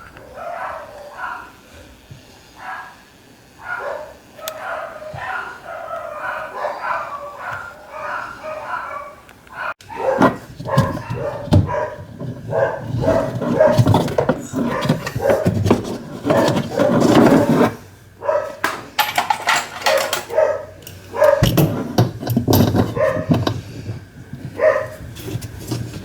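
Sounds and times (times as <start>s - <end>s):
dog barking: 0.0s - 1.6s, 2.6s - 15.6s, 16.2s - 17.0s, 18.2s - 18.6s, 19.9s - 21.8s, 22.8s - 23.4s, 24.6s - 25.0s.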